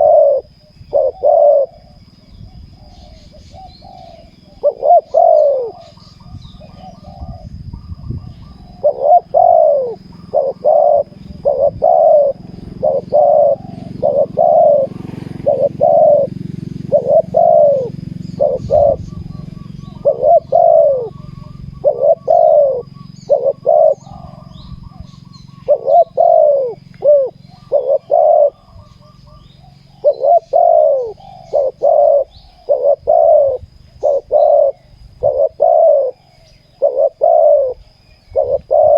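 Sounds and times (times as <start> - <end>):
doves cooing: 0.0 - 38.9.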